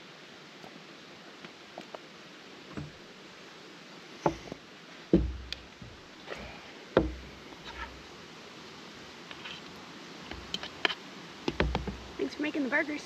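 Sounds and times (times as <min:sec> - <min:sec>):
sharp knocks with dull thump: 0:02.7 - 0:03.0, 0:04.2 - 0:06.0, 0:07.0 - 0:07.9, 0:11.5 - 0:12.2.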